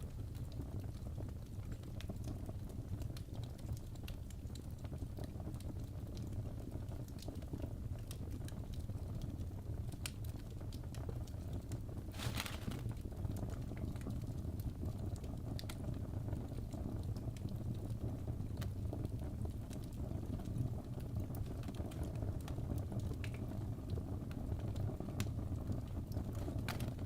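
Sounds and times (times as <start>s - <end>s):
low fire rumble: 0.0s - 27.0s
fire crackling: 10.0s - 13.5s.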